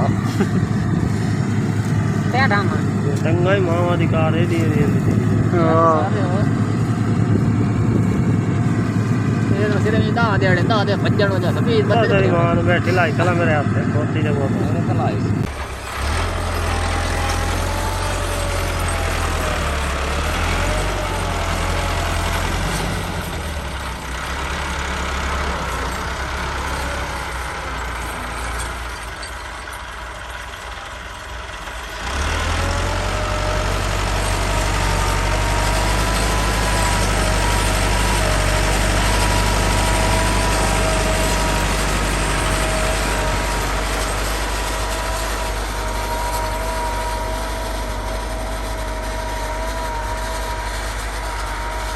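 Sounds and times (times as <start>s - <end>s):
diesel tractor engine running: 0.0s - 51.9s
steady whine: 34.6s - 51.9s.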